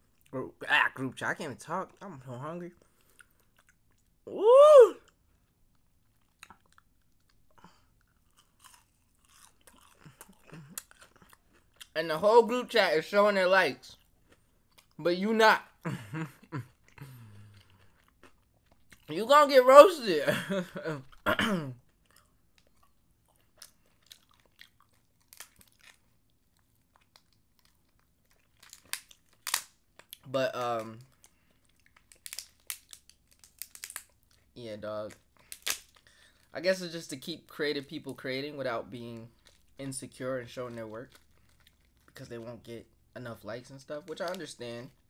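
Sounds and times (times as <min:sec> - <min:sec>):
crunching and chewing: 0:01.8 - 0:04.2, 0:05.0 - 0:12.0, 0:13.8 - 0:15.0, 0:15.8 - 0:19.1, 0:21.0 - 0:36.6, 0:39.0 - 0:43.1
man shouting woo: 0:04.3 - 0:05.1.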